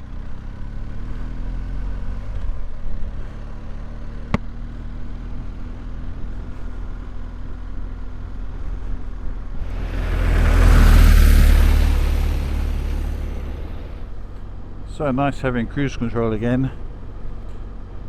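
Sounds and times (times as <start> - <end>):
wind noise on microphone: 9.6 - 14.1
motorcycle engine riding off: 9.6 - 14.2.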